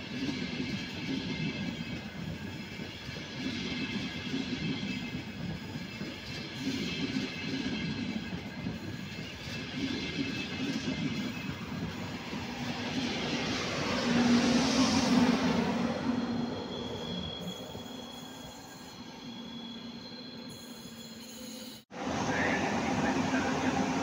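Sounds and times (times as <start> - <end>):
train wheels rumbling on rail: 0.0 - 18.9, 21.9 - 24.0.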